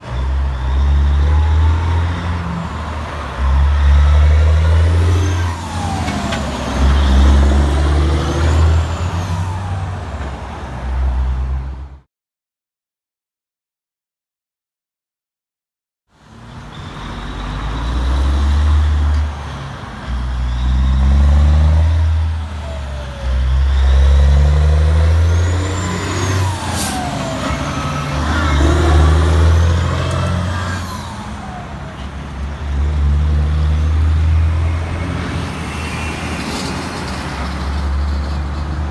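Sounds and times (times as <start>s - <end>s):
diesel truck engine accelerating: 0.0s - 12.1s, 16.2s - 38.9s.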